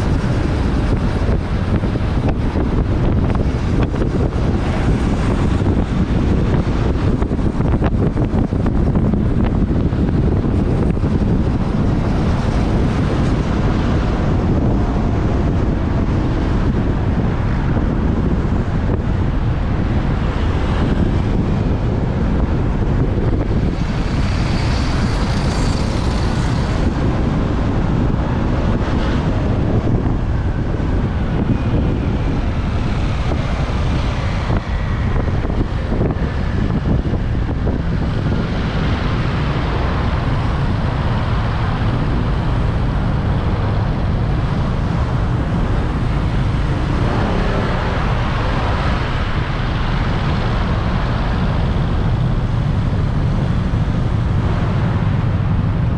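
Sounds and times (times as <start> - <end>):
road traffic: 0.0 - 55.9
wind buffeting microphone: 0.0 - 55.9.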